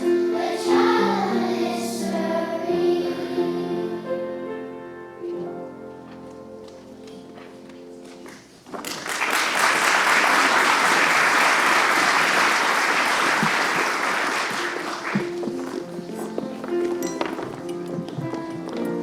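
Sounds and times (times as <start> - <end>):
audience applause: 8.7 - 15.8.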